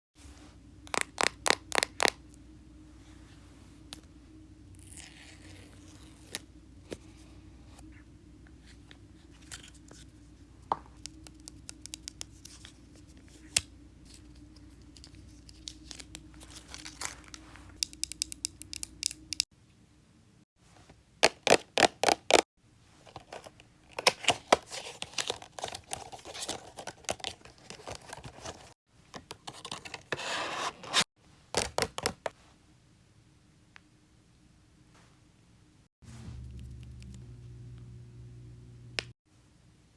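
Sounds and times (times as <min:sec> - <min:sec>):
packaging tearing and scraping: 0:15.1 - 0:17.5, 0:23.0 - 0:28.8.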